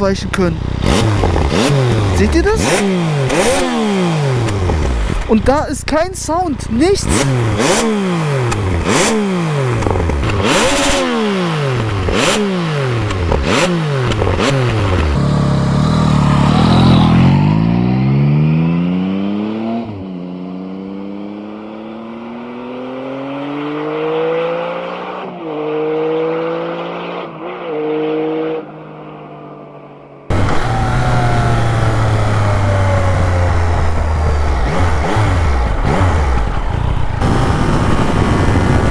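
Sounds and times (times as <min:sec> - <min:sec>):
motorcycle driving past: 0:00.0 - 0:05.3, 0:07.0 - 0:38.9
exhaust popping and crackling: 0:00.0 - 0:17.8, 0:30.3 - 0:38.9
motorcycle throttle blips: 0:00.0 - 0:20.2, 0:30.3 - 0:38.9.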